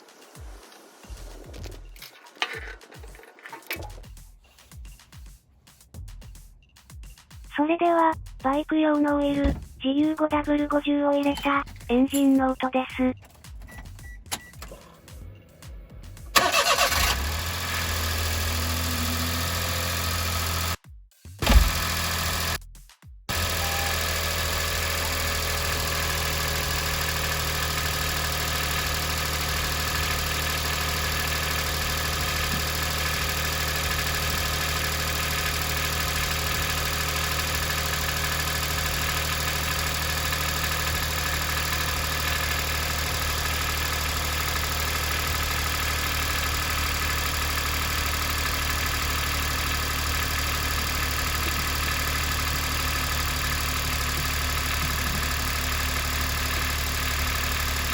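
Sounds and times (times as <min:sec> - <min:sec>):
car engine idling: 0:13.2 - 0:20.8, 0:21.4 - 0:22.6, 0:23.3 - 0:57.9.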